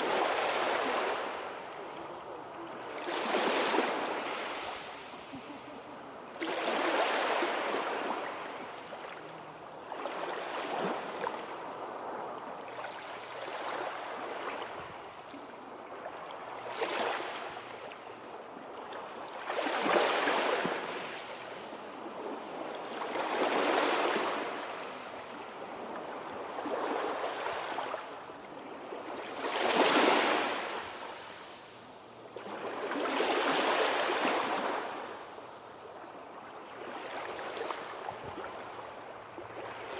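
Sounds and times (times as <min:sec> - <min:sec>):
sea waves washing in: 0:00.0 - 0:17.8.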